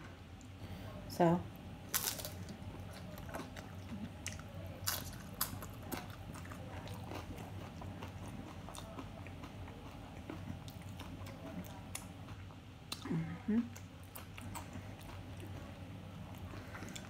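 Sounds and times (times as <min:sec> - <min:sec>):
tortilla chips crunching: 0:01.9 - 0:09.0
chewing: 0:01.9 - 0:13.1, 0:13.7 - 0:17.0.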